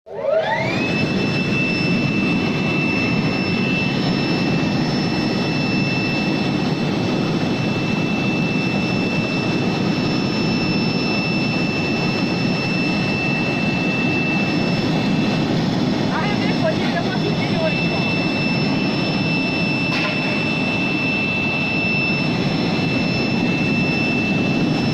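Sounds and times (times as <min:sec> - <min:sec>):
machine high whine: 0:00.1 - 0:24.9.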